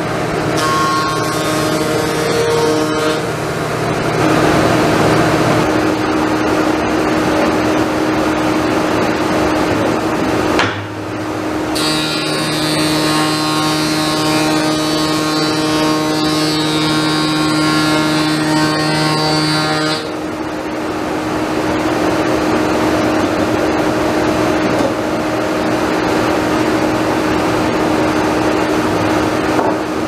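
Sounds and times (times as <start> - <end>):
saw cutting wood: 0.0 - 5.8, 11.7 - 20.2.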